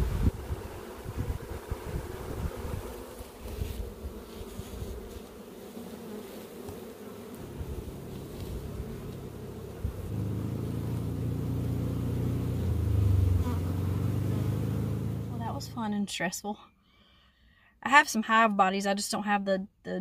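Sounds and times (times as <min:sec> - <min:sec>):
bees buzzing: 0:00.0 - 0:15.9
steady low hum: 0:07.4 - 0:16.0.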